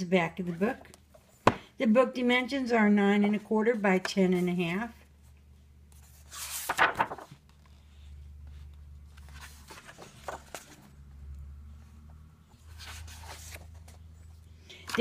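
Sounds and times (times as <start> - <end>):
paper rustling: 6.0 - 11.0, 12.6 - 14.2.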